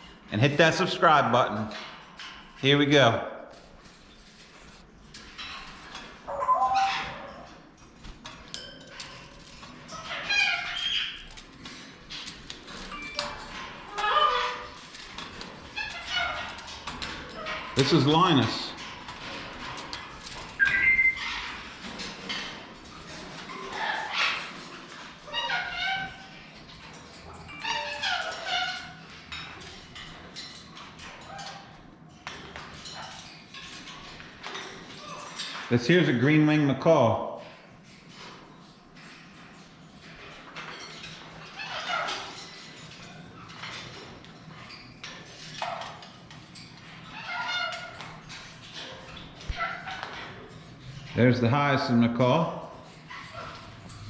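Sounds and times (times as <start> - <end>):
parrots squawking: 6.2 - 7.5, 9.8 - 11.3, 13.0 - 14.9, 15.5 - 18.6, 20.6 - 22.4, 23.5 - 24.6, 25.3 - 26.4, 27.6 - 29.3, 41.4 - 42.6, 46.8 - 48.8
parrot chirps and clicks: 6.3 - 7.5, 20.6 - 21.5
bird whistles: 20.6 - 21.2.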